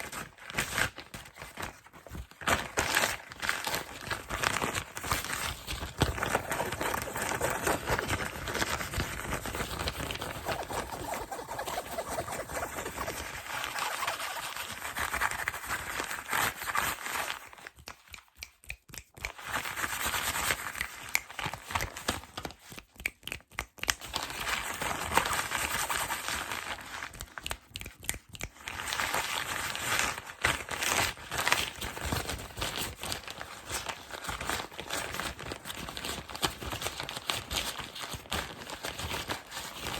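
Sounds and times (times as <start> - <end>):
plastic and cardboard packaging crinkling: 0.0 - 18.1, 24.0 - 39.9.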